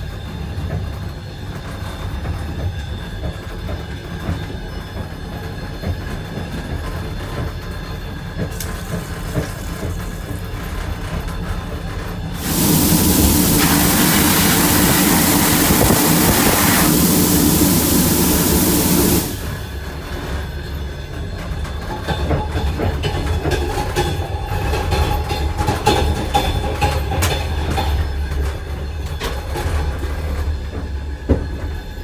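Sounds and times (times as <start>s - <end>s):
loud rushing noise: 12.4s - 19.8s.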